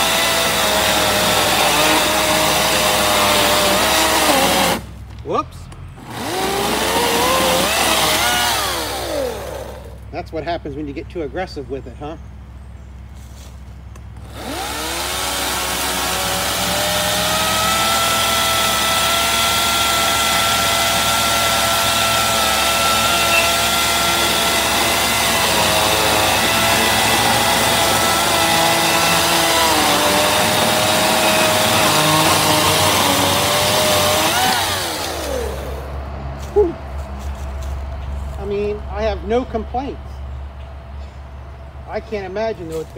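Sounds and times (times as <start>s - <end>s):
electric chainsaw motor whine: 0.0s - 4.9s, 6.0s - 10.0s, 14.2s - 35.9s.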